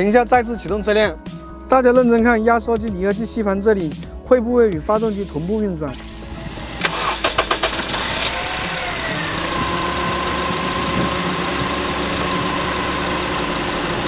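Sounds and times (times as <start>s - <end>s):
car engine idling: 5.9s - 14.0s
starter cranking: 6.0s - 14.0s.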